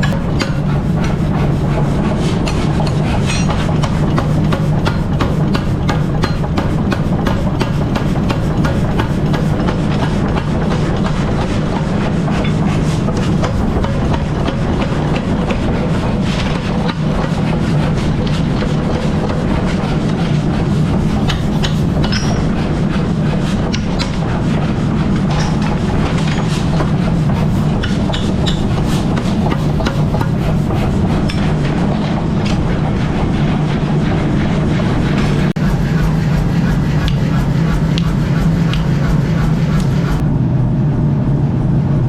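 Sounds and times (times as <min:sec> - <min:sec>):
machine humming: 0:26.8 - 0:40.3
sharp clicks and knocks: 0:35.5 - 0:40.2.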